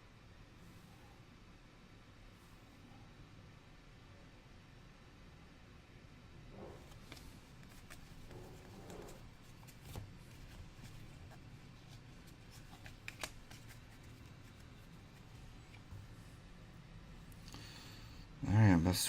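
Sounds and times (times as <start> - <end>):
cards rustling: 6.9 - 16.2.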